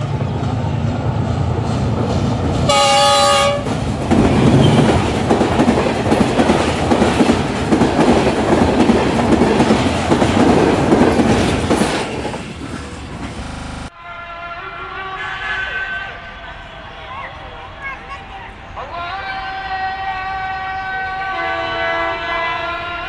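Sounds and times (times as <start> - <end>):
clickety-clack of wheels on rails: 0.0 - 13.6
train passing with loud rumble: 0.0 - 13.9
locomotive horn blast: 2.7 - 3.8, 20.0 - 23.0.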